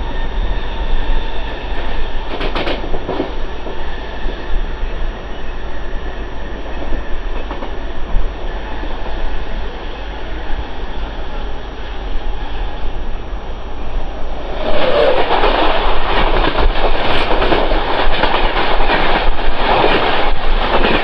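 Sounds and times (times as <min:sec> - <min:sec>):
train wheels rumbling on rails: 0:00.0 - 0:13.2, 0:13.8 - 0:21.0
wind buffeting microphone: 0:11.6 - 0:21.0.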